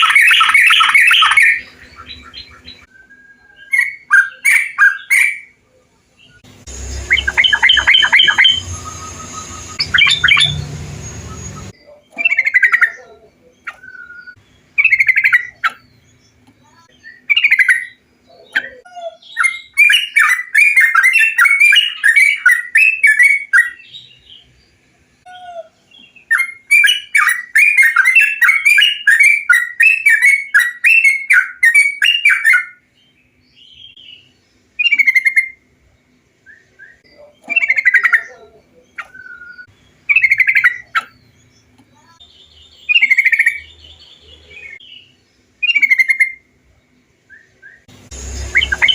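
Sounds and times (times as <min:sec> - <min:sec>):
bird singing bubbling phrases: 0:00.0 - 0:24.5, 0:33.7 - 0:35.6, 0:36.6 - 0:46.5, 0:47.4 - 0:48.9.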